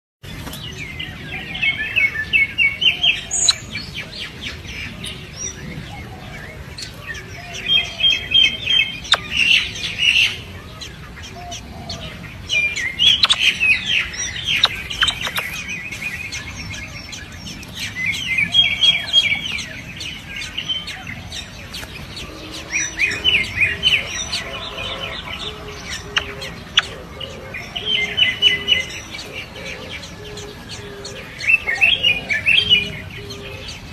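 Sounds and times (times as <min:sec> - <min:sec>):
baby birds chirping: 0:07.4 - 0:10.5, 0:11.2 - 0:33.8.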